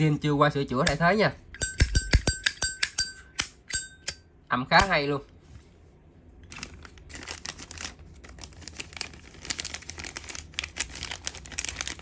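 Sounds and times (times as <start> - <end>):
plastic crinkling and clicking: 6.4 - 12.0.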